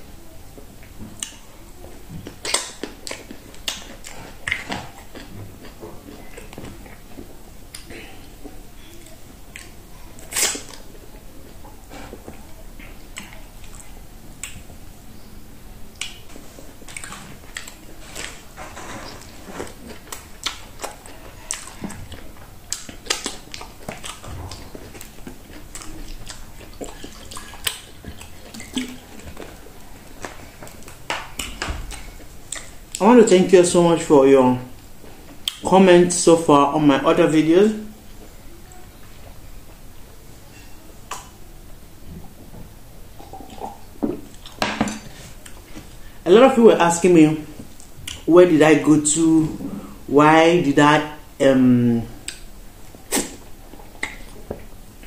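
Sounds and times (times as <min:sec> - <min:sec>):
wet chewing and lip smacks: 0:02.2 - 0:14.7, 0:15.9 - 0:18.4, 0:19.1 - 0:33.0, 0:35.3 - 0:35.7, 0:47.7 - 0:48.3, 0:52.2 - 0:54.8.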